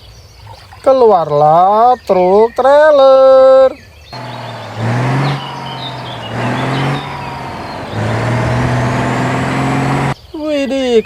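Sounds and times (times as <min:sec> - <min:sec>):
truck engine revving: 0:04.2 - 0:10.2.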